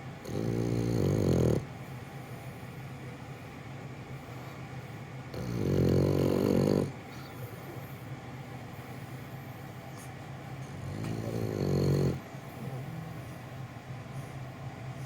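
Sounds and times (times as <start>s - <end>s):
dog snoring: 0.2s - 2.4s, 5.3s - 8.0s, 10.7s - 13.4s.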